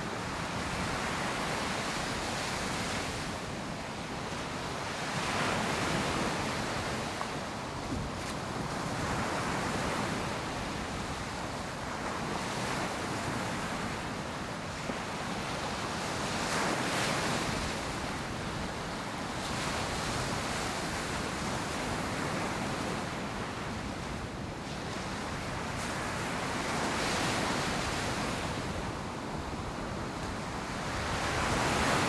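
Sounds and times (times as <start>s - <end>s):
ocean surf breaking on beach: 8.1s - 32.0s.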